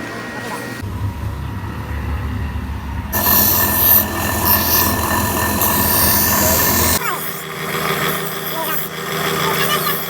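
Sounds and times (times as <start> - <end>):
power grinder humming: 3.0 - 9.6
grinder grinding metal: 3.0 - 10.0.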